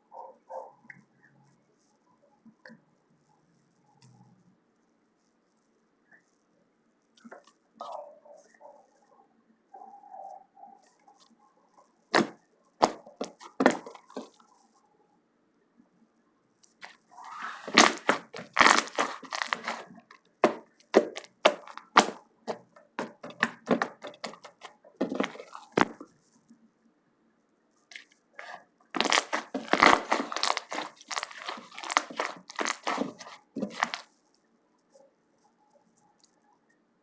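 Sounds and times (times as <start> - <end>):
slime crackling: 12.2 - 14.4, 16.8 - 26.1, 27.9 - 34.1.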